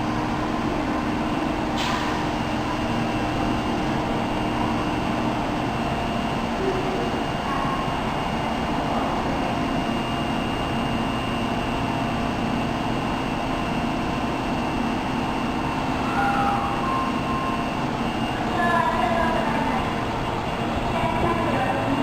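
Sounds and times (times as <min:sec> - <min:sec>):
subway train rumble with whine: 0:00.0 - 0:22.0
short high tones: 0:16.0 - 0:17.8.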